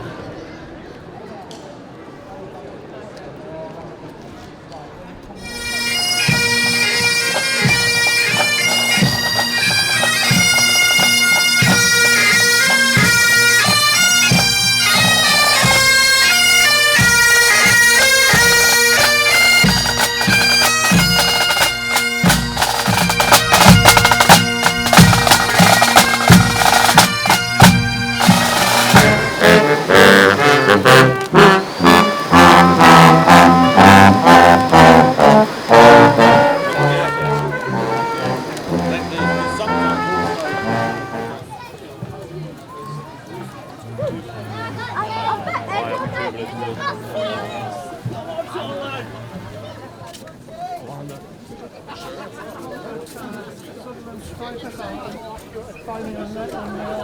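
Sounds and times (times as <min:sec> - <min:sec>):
bagpipes playing a melody: 0:05.4 - 0:41.4
brass instruments: 0:05.4 - 0:41.5
regular drumbeat: 0:05.6 - 0:41.4.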